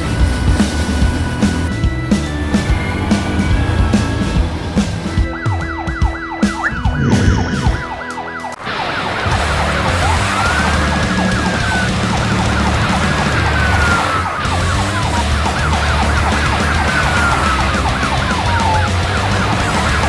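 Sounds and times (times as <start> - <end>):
siren wailing glide: 1.7 - 20.0
siren yelping: 1.7 - 20.0
low rumble: 1.9 - 7.8.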